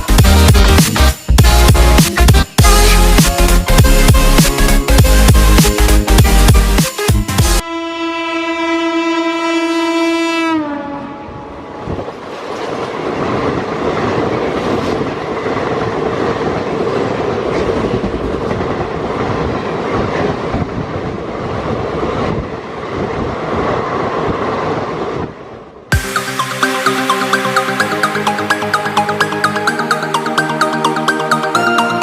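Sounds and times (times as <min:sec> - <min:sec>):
train rumbling at speed: 0:00.0 - 0:32.0
locomotive horn blast: 0:07.4 - 0:11.9.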